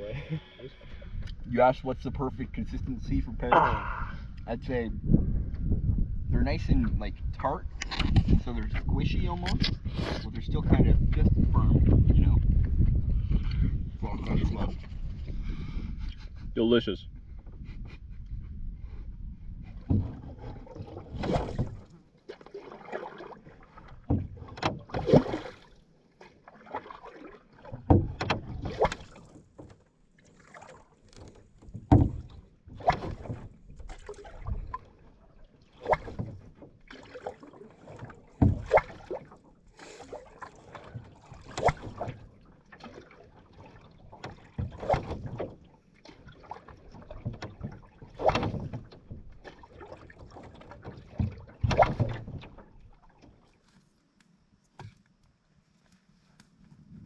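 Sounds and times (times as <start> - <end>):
paddle strokes splashing in water: 19.6 - 55.1.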